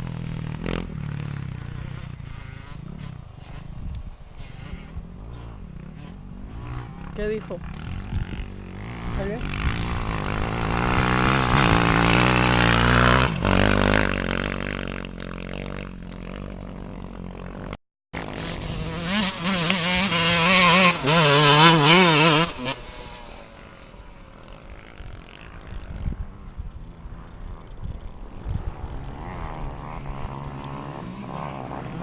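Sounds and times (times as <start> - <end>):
race engine revving: 18.3 - 23.4.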